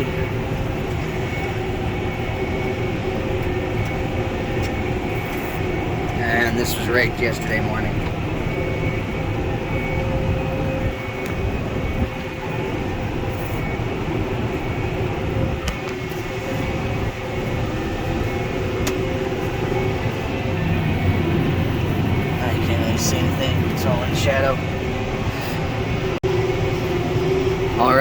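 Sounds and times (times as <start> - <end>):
tractor and baler rumbling: 0.0 - 28.0
baler sharp clicks: 18.8 - 19.0.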